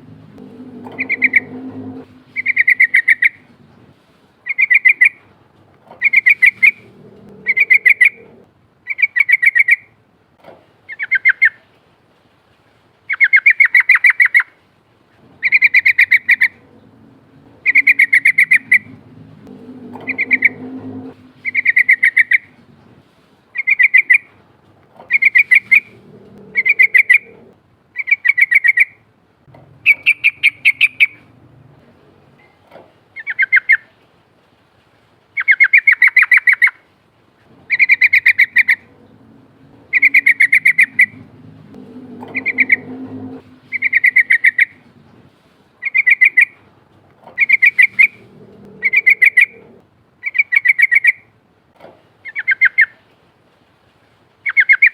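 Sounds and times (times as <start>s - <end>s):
bulbul singing: 0.6s - 3.4s, 17.5s - 22.6s, 39.7s - 44.8s.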